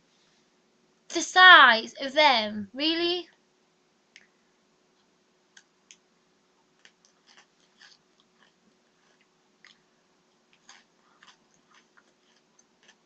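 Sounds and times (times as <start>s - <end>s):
chewing crunchy pretzels: 6.6s - 13.0s.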